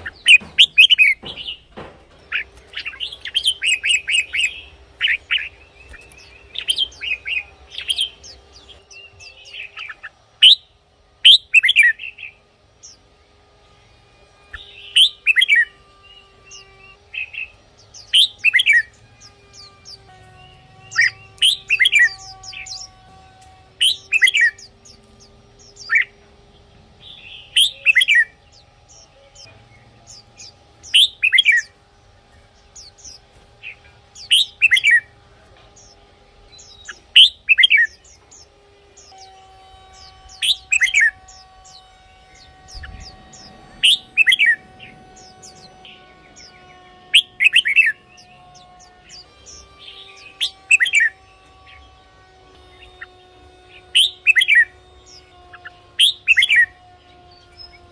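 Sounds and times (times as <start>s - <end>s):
bulbul singing: 0.0s - 13.2s, 14.4s - 57.9s.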